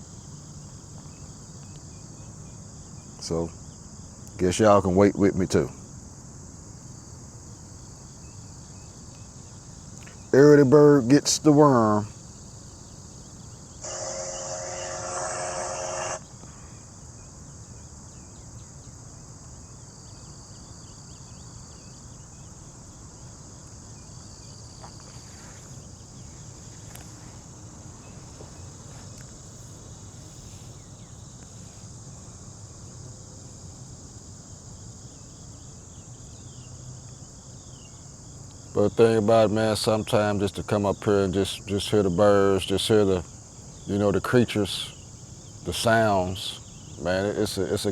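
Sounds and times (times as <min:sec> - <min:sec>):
crickets and insects chirring: 0:00.0 - 0:47.9
loud pitched sound: 0:13.8 - 0:16.2.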